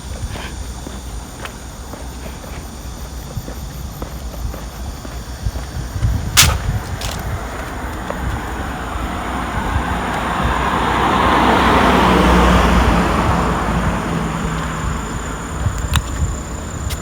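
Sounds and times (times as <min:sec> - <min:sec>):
car driving past: 0:08.5 - 0:15.5.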